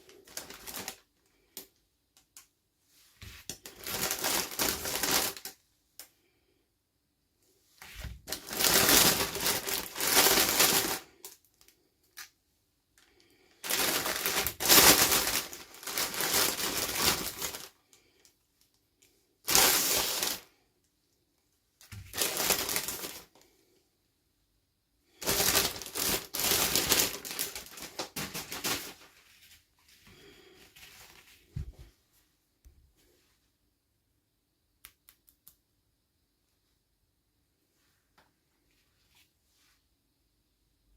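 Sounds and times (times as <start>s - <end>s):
packaging crinkling: 0.0s - 1.1s, 3.4s - 5.6s, 8.0s - 12.3s, 13.6s - 17.8s, 19.5s - 20.5s, 21.9s - 23.4s, 25.2s - 29.2s.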